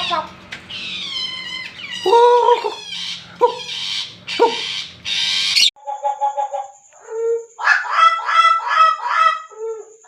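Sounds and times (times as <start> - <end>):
bird calling clear gliding notes: 0.0 - 7.8
harsh rasping bird calls: 0.0 - 10.0.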